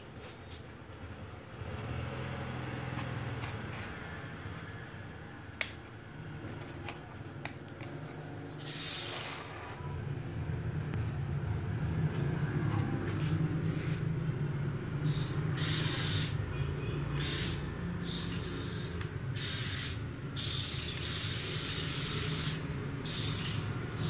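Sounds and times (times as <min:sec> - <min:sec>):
toy electric motors whirring: 0:07.9 - 0:09.8, 0:15.0 - 0:16.4, 0:17.2 - 0:24.0.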